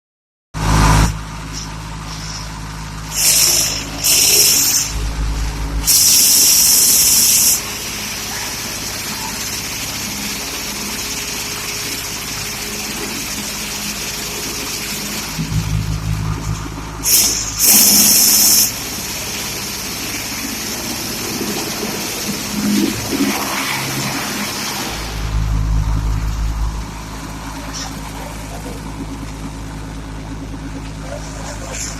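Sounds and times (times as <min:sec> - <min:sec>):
wood chipper engine running: 0:00.6 - 0:31.9
high hissing bursts: 0:03.1 - 0:08.1, 0:17.0 - 0:18.8.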